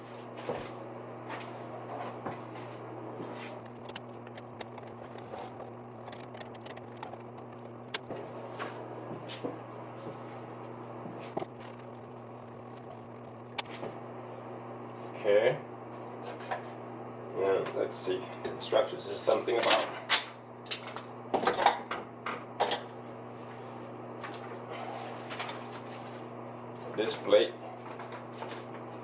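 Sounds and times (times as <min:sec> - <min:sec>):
steady low hum: 0:00.0 - 0:29.0
sharp clicks: 0:05.9 - 0:08.1.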